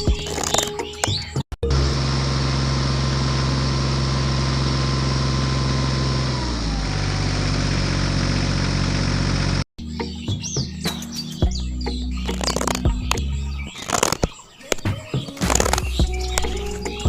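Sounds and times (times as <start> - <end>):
motor humming: 12.3 - 17.0.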